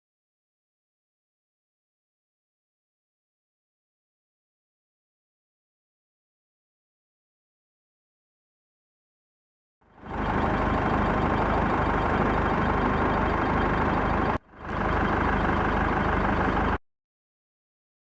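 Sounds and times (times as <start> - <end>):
large vehicle engine running: 9.8 - 16.8.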